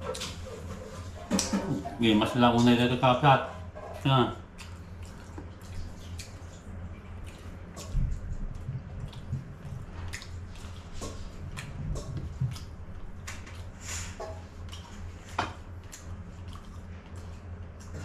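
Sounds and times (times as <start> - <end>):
steady low hum: 0.0 - 18.0
wet chewing and lip-smacking: 3.6 - 18.0.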